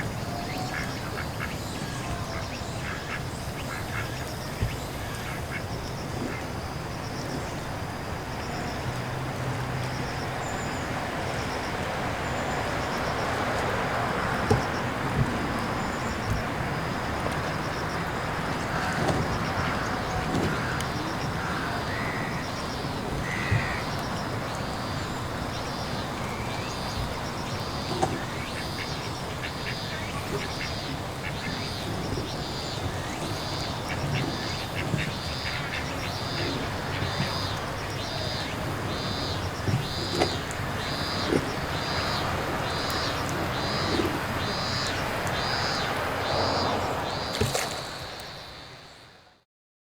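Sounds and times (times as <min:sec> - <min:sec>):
birds calling high notes: 0:00.0 - 0:03.9
steady noisy background: 0:00.0 - 0:49.4.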